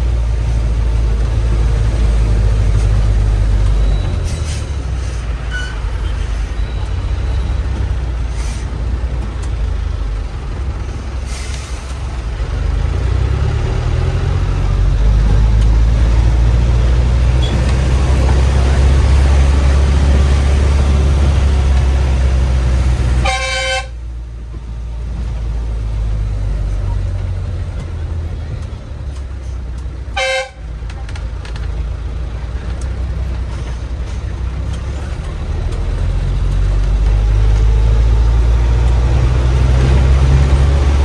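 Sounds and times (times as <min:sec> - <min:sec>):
bus engine running: 0:00.0 - 0:41.0
horn toot: 0:23.2 - 0:24.0, 0:30.2 - 0:30.6.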